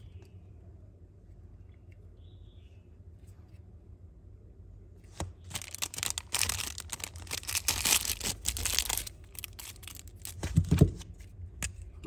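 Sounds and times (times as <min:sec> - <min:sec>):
packaging crinkling and rustling: 0:05.2 - 0:11.0.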